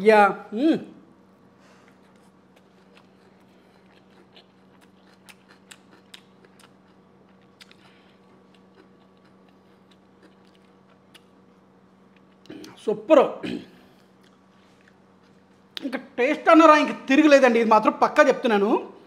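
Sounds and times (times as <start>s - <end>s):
steady low hum: 0.0s - 19.0s
person chewing: 1.7s - 12.8s, 13.9s - 15.9s.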